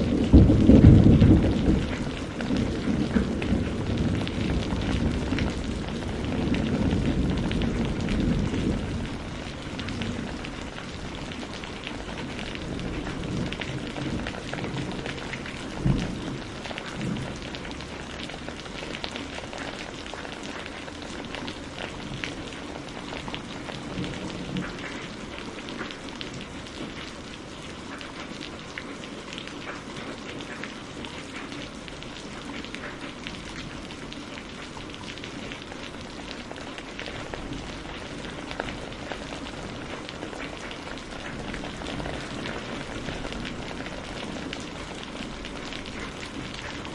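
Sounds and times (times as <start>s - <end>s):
thunder rumble: 0.0s - 20.3s
rain falling: 0.0s - 46.9s.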